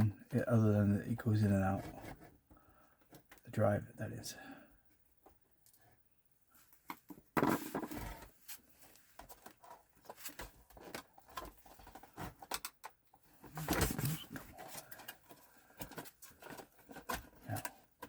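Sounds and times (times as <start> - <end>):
plastic and metal parts clicking: 9.2 - 13.0.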